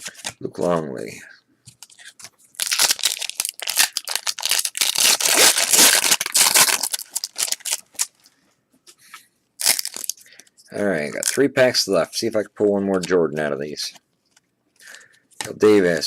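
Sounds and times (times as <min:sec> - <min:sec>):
foil wrapper tearing and crinkling: 0:02.6 - 0:08.1, 0:09.6 - 0:10.2.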